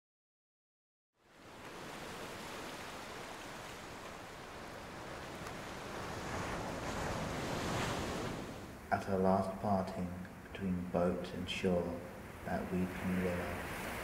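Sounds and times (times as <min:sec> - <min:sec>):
waves washing on shore: 0:01.2 - 0:08.9, 0:12.1 - 0:14.0.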